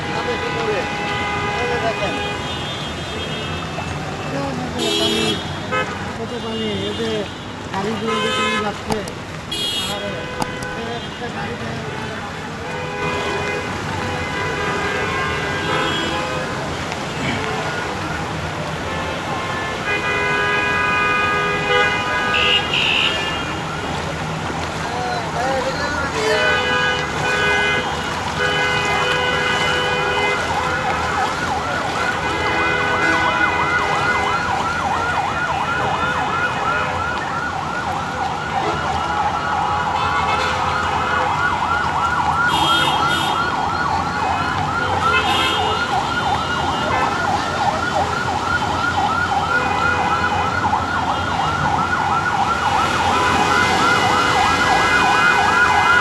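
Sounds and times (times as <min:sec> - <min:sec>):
emergency siren yelping: 0:28.2 - 0:56.0.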